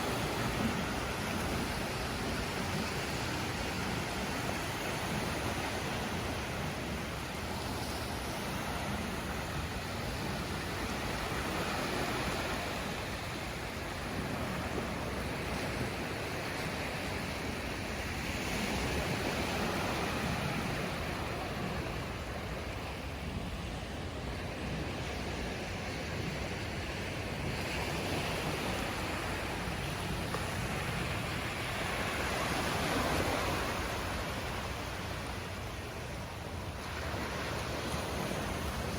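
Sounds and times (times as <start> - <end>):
stormy surf roaring: 0.0 - 38.9
waves breaking on beach: 0.0 - 38.9
wind: 0.0 - 38.9.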